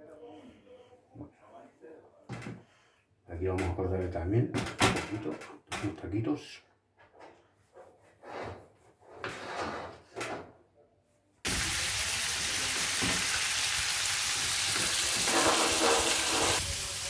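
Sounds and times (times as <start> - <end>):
ribs sizzling in a pan: 11.5 - 17.0.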